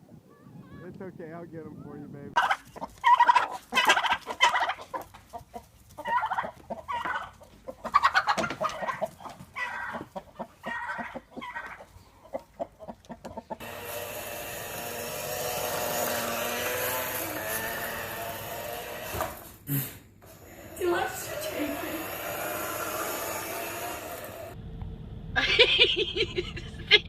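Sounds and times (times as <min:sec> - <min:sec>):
bird clucking: 0:02.4 - 0:13.6.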